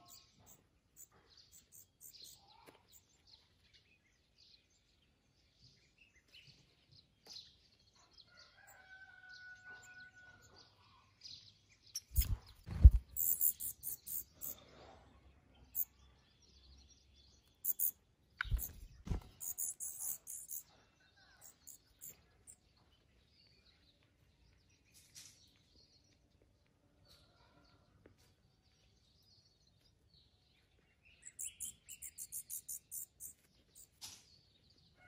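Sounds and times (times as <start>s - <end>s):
birds calling faintly: 0.0s - 35.0s.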